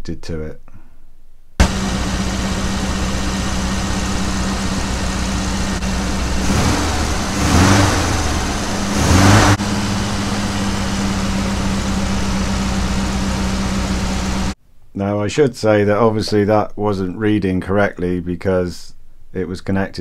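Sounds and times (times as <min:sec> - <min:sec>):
car engine idling and revving: 0:01.6 - 0:14.6.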